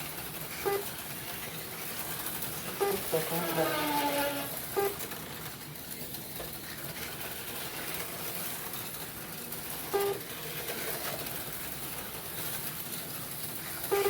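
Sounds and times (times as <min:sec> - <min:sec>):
background whir: 0:00.0 - 0:14.0.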